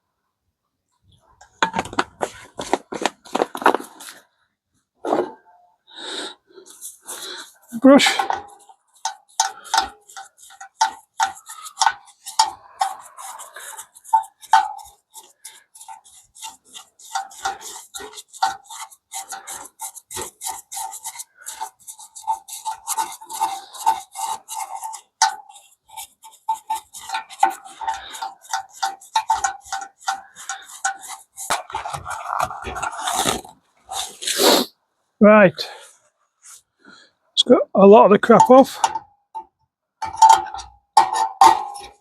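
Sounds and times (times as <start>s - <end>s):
brush scrubbing metal parts: 6.6s - 34.7s, 38.2s - 42.0s.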